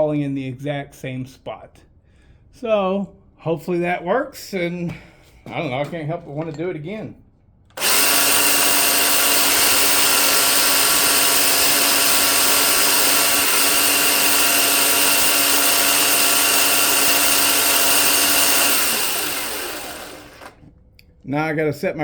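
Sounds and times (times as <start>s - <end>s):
electric chainsaw motor whine: 7.8s - 20.7s.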